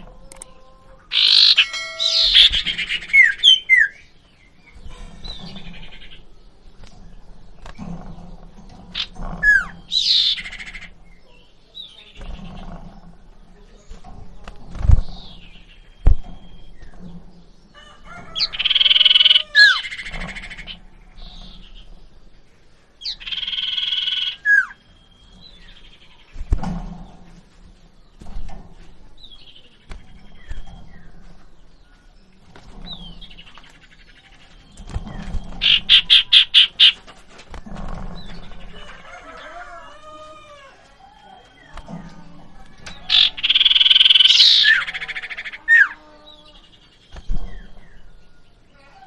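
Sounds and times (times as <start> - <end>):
songbird chirps: 0.0 - 49.0
fast run of bird notes: 1.1 - 4.0
songbird chattering calls: 1.1 - 4.1, 8.9 - 12.7, 23.0 - 26.3, 35.6 - 37.0, 42.8 - 46.7.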